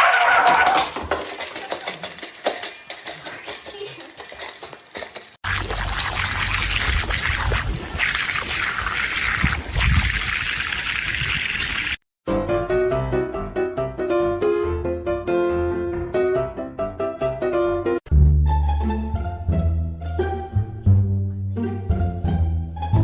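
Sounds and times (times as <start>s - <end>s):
running water: 5.4s - 12.0s
piano music: 12.3s - 23.0s.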